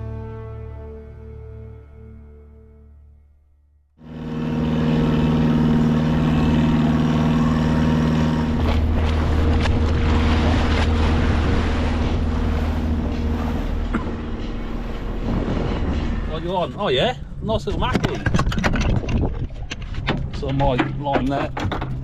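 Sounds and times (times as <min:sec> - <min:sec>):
small boat engine running: 0:04.0 - 0:16.3
water noise: 0:04.0 - 0:22.0
wind: 0:04.0 - 0:22.0.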